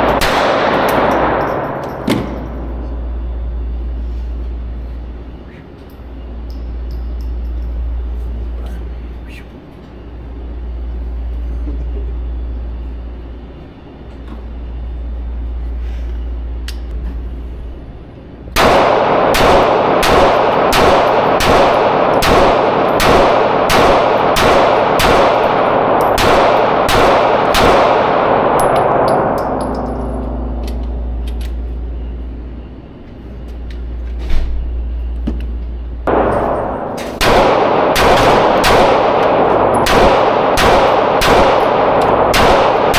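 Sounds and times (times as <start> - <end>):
handgun shots with echo: 0.0 - 2.6, 18.6 - 30.8, 36.1 - 42.9.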